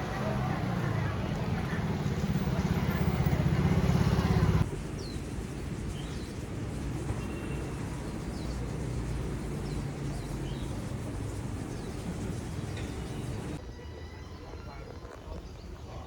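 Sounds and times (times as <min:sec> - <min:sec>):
small bird chirping: 0:07.1 - 0:13.6.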